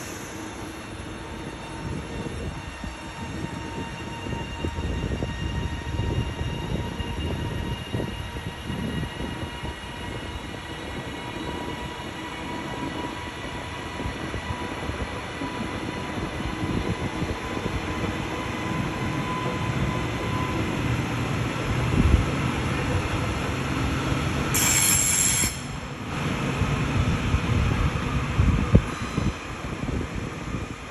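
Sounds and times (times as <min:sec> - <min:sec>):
train wheels rumbling on track: 0:00.0 - 0:30.9
train motor whine: 0:23.8 - 0:26.1.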